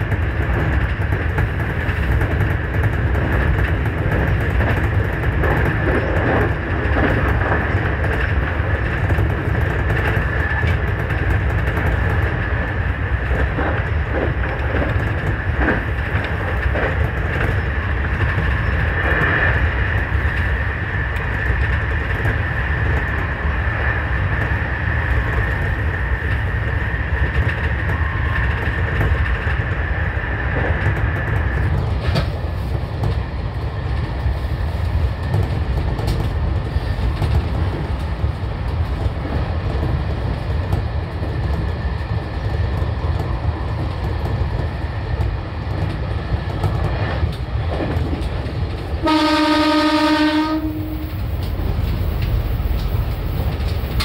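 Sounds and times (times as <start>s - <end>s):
wheels clicking over rail joints: 50.9s - 54.0s.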